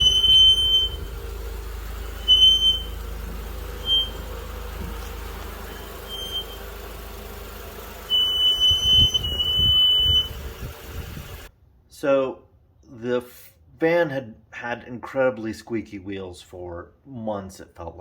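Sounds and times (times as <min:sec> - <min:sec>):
brakes squealing: 0:00.0 - 0:11.5
low road rumble: 0:00.0 - 0:11.5.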